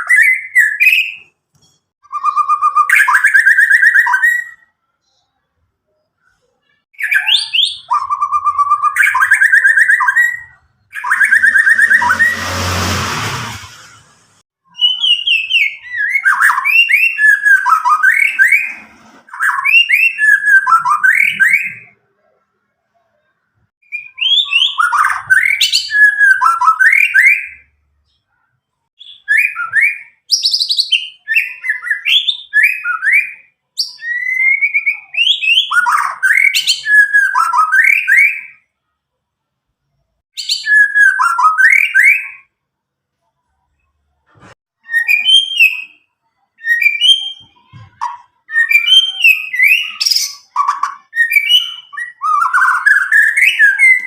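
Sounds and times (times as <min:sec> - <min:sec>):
bird singing whistled phrases: 0:00.0 - 0:01.2, 0:02.0 - 0:04.8, 0:07.0 - 0:12.4, 0:14.7 - 0:22.0, 0:23.8 - 0:28.2, 0:29.0 - 0:38.7, 0:40.4 - 0:42.5, 0:44.8 - 0:47.7, 0:48.4 - 0:54.0.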